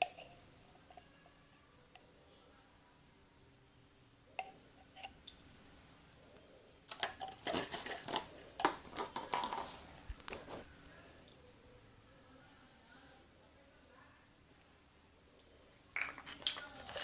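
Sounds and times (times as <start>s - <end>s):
plastic containers clicking: 6.9s - 10.4s, 16.0s - 17.0s
tapping and crinkling: 6.9s - 10.7s, 16.0s - 17.0s.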